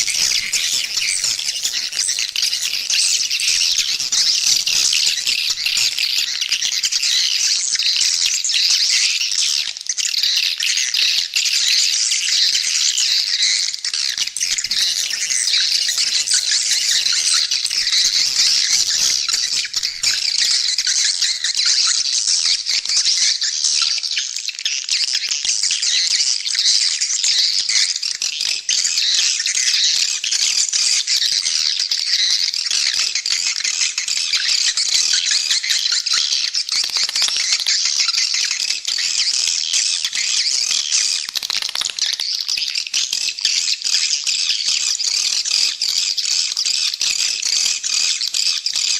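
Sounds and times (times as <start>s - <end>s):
swiftlets twittering: 0.0s - 7.6s, 13.0s - 21.6s, 36.7s - 38.6s, 41.1s - 42.4s.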